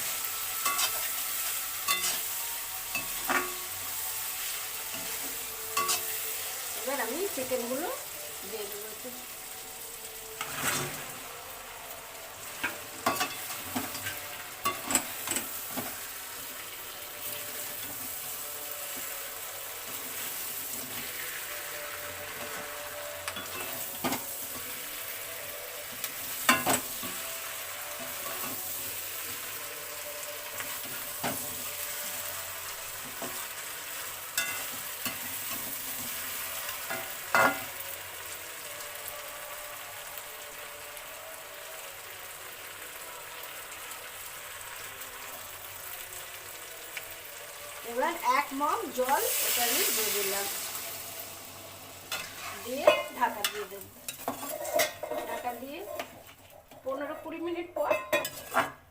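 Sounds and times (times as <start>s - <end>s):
spatula scraping a pan: 0.0s - 6.8s, 10.4s - 11.2s, 52.0s - 57.3s, 57.9s - 58.8s
food sizzling in a pan: 0.0s - 58.9s.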